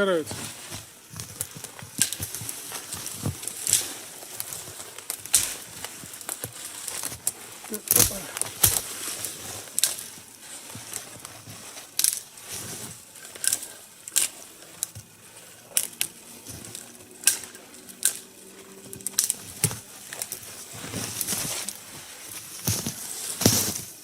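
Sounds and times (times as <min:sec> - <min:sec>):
twigs rustling: 0:00.0 - 0:24.0
branches snapping: 0:00.7 - 0:24.0.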